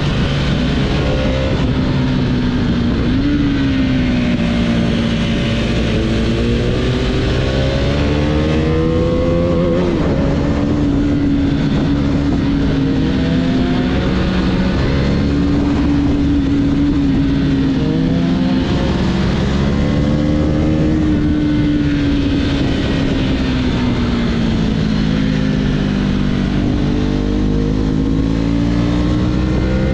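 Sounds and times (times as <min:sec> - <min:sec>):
motorcycle engine accelerating: 0:00.0 - 0:29.9.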